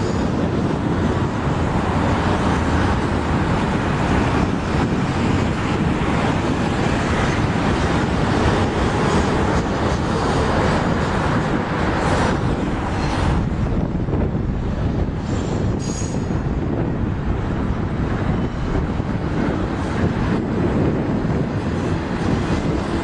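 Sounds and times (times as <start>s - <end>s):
train wheels rumbling on rails: 0.0s - 23.0s
faint high wheel squeal: 15.3s - 16.4s.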